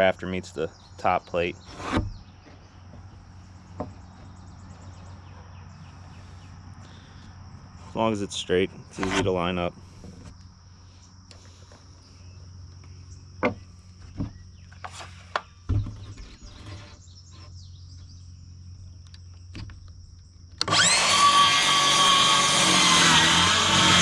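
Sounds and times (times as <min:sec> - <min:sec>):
high insect trill: 0:00.0 - 0:21.0
wooden knocks of lumber: 0:01.8 - 0:04.4, 0:13.4 - 0:16.2
power tool spinning up: 0:20.6 - 0:24.0.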